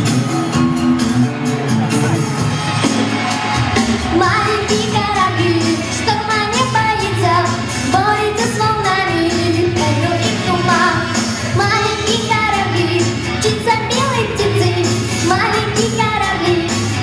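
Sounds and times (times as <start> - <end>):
pop backing track with bass: 0.0 - 17.0
woman singing: 4.1 - 17.0.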